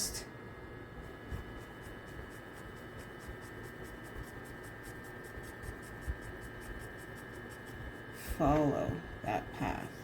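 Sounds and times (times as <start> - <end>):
pencil scratching on paper: 1.0 - 8.6.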